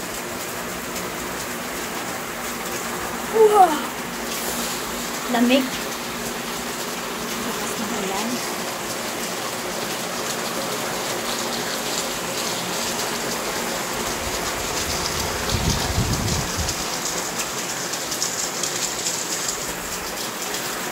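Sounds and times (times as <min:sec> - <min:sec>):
heavy rain on wet paving: 0:00.0 - 0:20.9.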